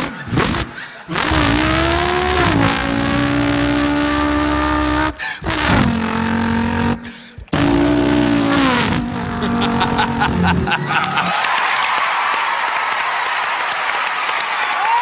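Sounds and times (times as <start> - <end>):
man imitating race car engine: 0.0 - 11.3.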